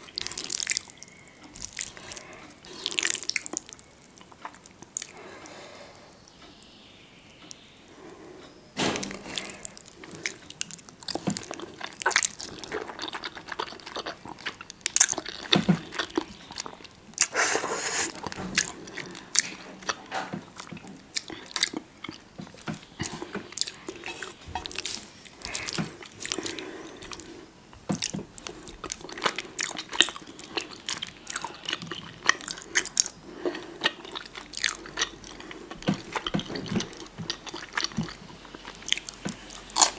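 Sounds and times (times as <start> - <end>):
person chewing crunchy food: 0.0 - 6.7, 9.0 - 39.9.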